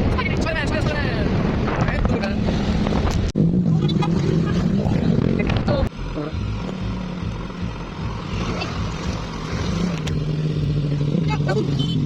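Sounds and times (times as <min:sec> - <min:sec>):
road and wind noise: 0:00.0 - 0:12.0
motorcycle engine running: 0:02.7 - 0:12.0.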